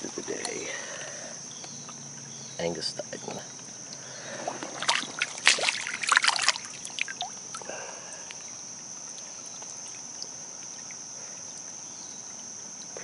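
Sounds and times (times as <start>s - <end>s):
high-pitched insect drone: 0.0s - 13.0s
splashes in shallow water: 4.3s - 7.7s.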